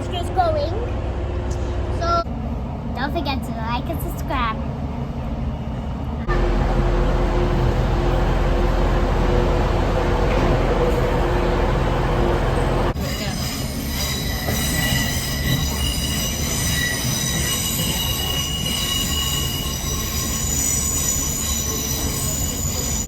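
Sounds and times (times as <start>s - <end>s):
low train rumble: 0.0s - 23.0s
train wheels squealing on rails: 10.2s - 23.0s.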